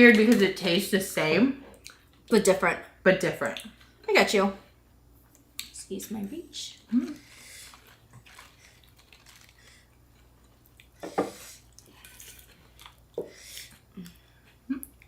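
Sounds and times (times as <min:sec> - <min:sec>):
wet handling of food: 0:07.1 - 0:11.0.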